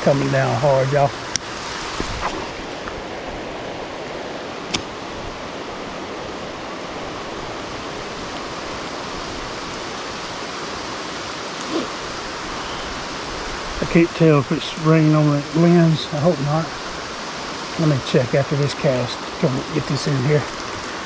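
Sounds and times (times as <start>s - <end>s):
heavy rain pouring: 5.0s - 21.0s.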